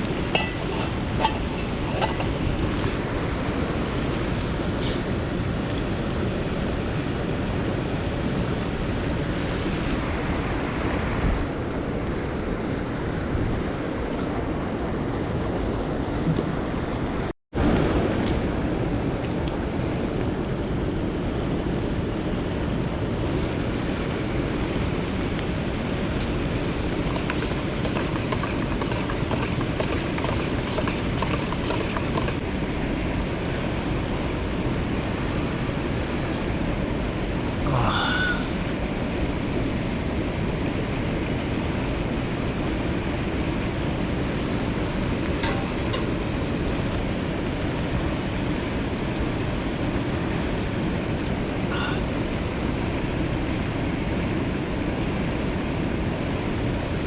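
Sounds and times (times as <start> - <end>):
mountain stream rushing: 19.7 - 57.0.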